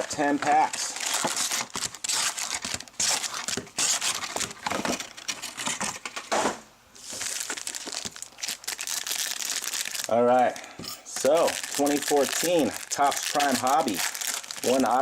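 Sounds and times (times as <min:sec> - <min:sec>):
plastic packaging crinkling and tearing: 0:00.0 - 0:06.2, 0:07.0 - 0:15.0.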